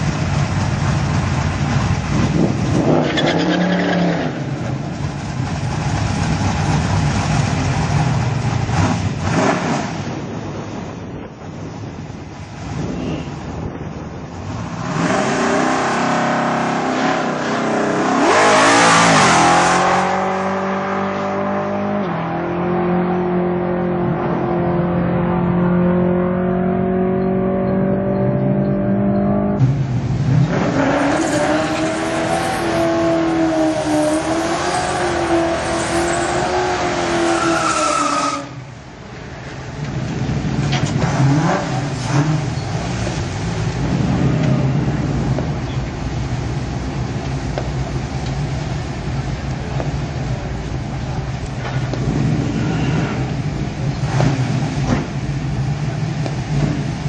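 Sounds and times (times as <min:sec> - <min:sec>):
car engine accelerating: 0:14.4 - 0:37.7.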